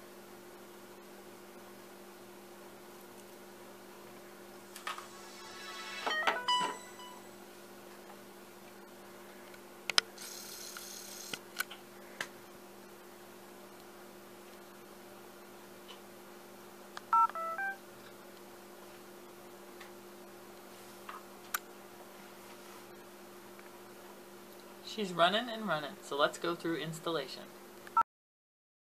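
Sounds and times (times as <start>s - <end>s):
faint electrical hum: 0.0s - 28.0s
short electronic tones: 4.8s - 7.4s, 17.2s - 17.8s
phone key beeps: 17.2s - 17.8s.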